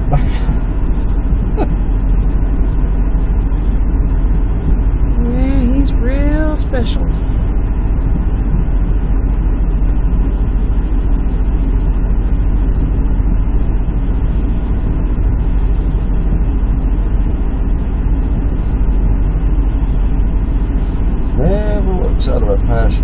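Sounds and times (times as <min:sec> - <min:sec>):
diesel truck engine idling: 0:00.0 - 0:23.0.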